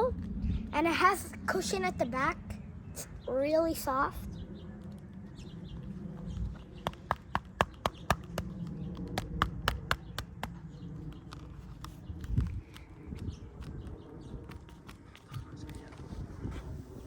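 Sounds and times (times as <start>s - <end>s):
taps on plastic helmet: 6.8s - 12.9s.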